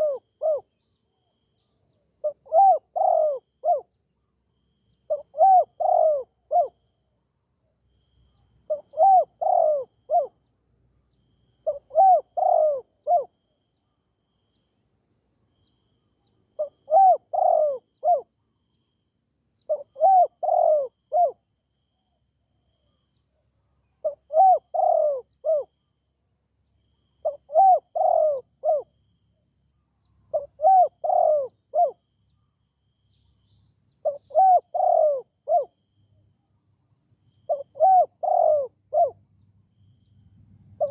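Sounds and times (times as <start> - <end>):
dove cooing: 0.0 - 0.7, 2.2 - 3.9, 5.1 - 6.8, 8.7 - 10.4, 11.6 - 13.3, 16.6 - 18.3, 19.7 - 21.4, 24.0 - 25.7, 27.2 - 28.9, 30.3 - 32.0, 34.0 - 35.8, 37.5 - 39.2.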